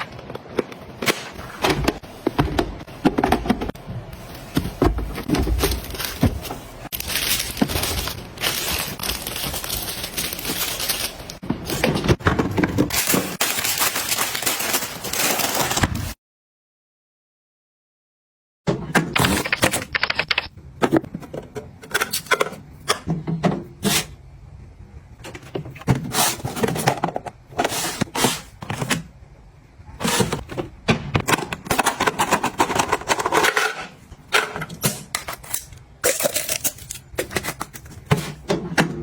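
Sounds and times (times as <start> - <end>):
items clicking and knocking: 0.0 - 13.4, 19.0 - 23.7, 25.2 - 29.1, 30.0 - 39.0.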